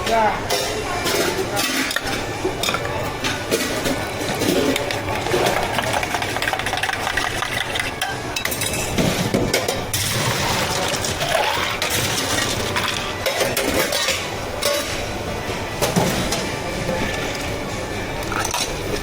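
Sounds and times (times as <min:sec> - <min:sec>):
cups and utensils clinking: 0:00.5 - 0:15.1.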